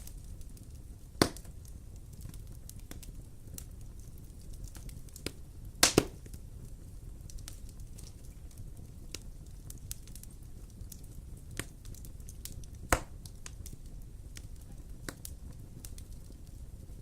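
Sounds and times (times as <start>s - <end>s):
wood fire crackling: 0.0s - 17.0s
sharp pops and snaps: 1.2s - 6.4s, 9.1s - 16.6s.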